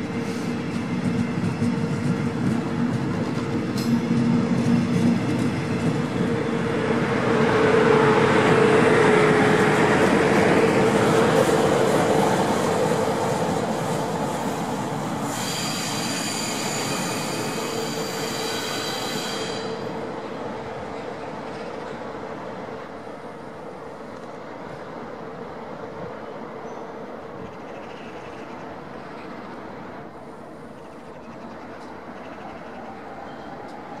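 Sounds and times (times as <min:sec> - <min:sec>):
train rolling past on rails: 0:00.0 - 0:34.0
wheel squeal: 0:15.2 - 0:19.8.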